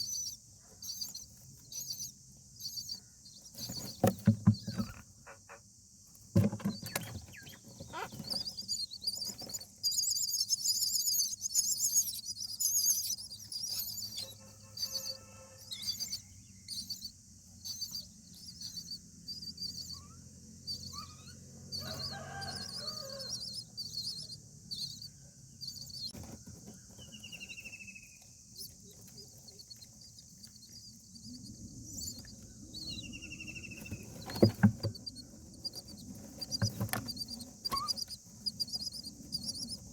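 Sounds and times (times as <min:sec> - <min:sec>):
nestlings cheeping: 0:06.2 - 0:39.9.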